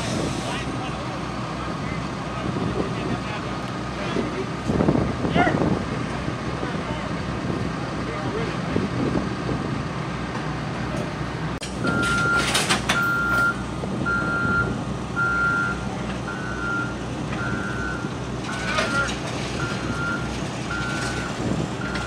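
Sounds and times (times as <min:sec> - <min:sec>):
diesel engine rumble: 0:00.0 - 0:22.0
truck reverse alarm beeping: 0:11.7 - 0:22.0.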